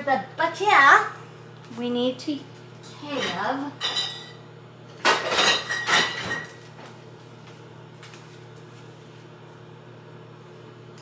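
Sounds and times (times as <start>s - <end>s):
steady low hum: 0.0s - 11.0s
kitchenware clattering: 2.8s - 4.4s, 5.0s - 6.6s.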